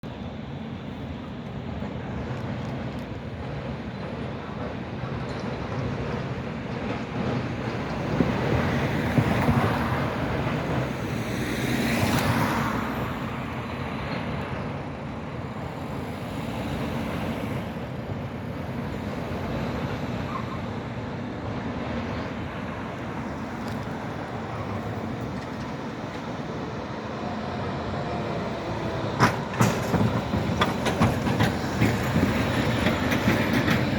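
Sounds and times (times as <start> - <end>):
street traffic noise: 0.0 - 33.9
clunks: 28.8 - 33.9.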